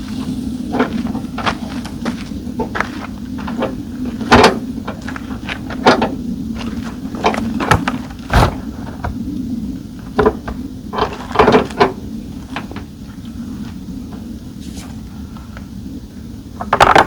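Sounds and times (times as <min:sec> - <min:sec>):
steady low hum: 0:00.0 - 0:17.0
tent handling knocks and rustles: 0:07.2 - 0:09.2.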